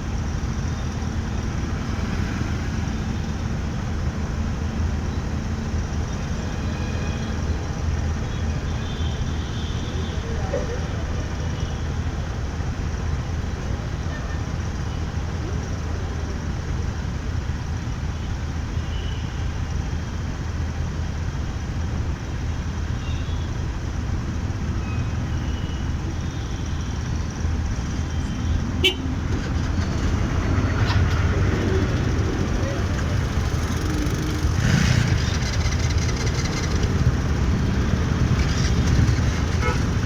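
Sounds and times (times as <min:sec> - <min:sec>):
motorbike engine rumble: 0:19.8 - 0:40.0
vehicle horns honking: 0:28.1 - 0:29.2, 0:38.4 - 0:40.0.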